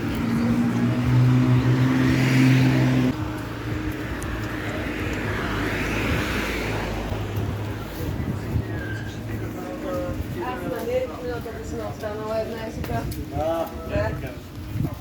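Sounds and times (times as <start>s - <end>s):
vehicle engine hum: 0.0s - 9.6s
vehicles passing: 0.0s - 15.0s.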